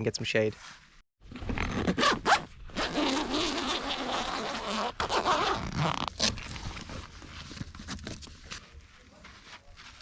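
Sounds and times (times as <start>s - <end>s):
zipper being pulled open: 1.3s - 6.6s.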